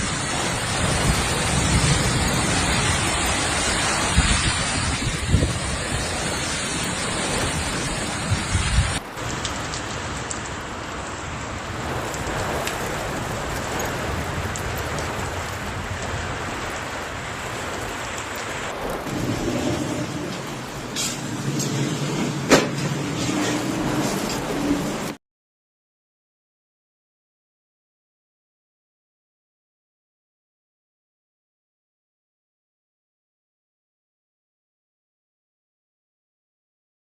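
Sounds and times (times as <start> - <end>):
hail and heavy rain pelting: 0.0 - 25.2.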